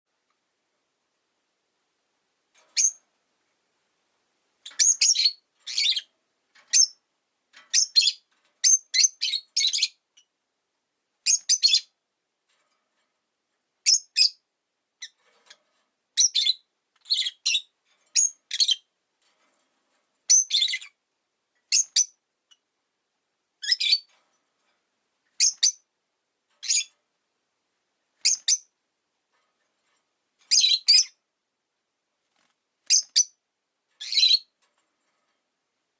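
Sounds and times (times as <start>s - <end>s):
lovebird chirping: 2.7s - 3.0s, 4.6s - 6.1s, 6.7s - 7.0s, 7.7s - 10.3s, 11.2s - 12.0s, 13.8s - 14.4s, 16.2s - 18.9s, 20.3s - 21.0s, 21.7s - 22.6s, 23.6s - 24.1s, 25.4s - 25.9s, 26.6s - 26.9s, 28.2s - 28.7s, 30.5s - 31.2s, 32.9s - 33.4s, 34.0s - 34.5s.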